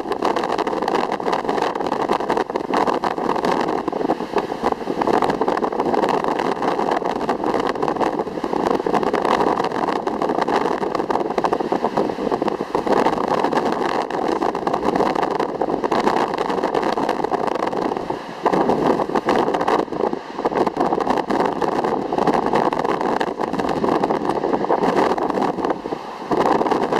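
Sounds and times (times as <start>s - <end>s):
ocean surf rushing: 0.0s - 26.9s.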